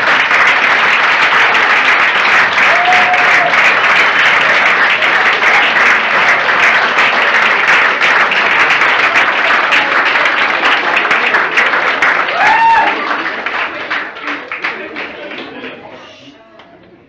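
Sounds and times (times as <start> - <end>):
crowd applauding: 0.0 - 16.0.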